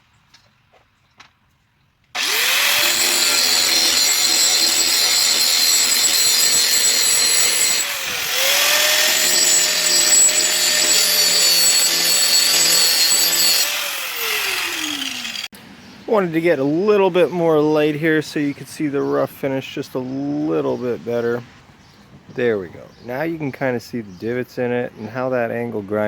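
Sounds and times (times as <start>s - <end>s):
angle grinder grinding steel: 2.2s - 15.5s.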